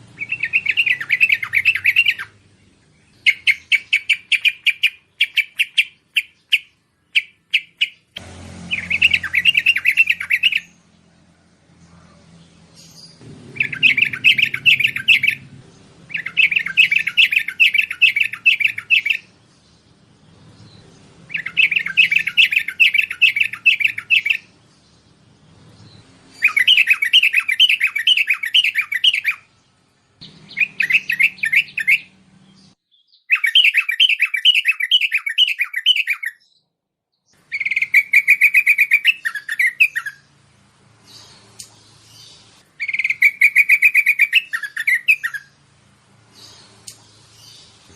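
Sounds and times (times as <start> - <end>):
bulbul chattering calls: 0.2 - 2.4, 3.0 - 8.1, 8.7 - 10.8, 12.8 - 19.4, 20.6 - 24.6, 26.3 - 29.5, 30.2 - 36.4, 37.5 - 40.3, 41.1 - 45.6.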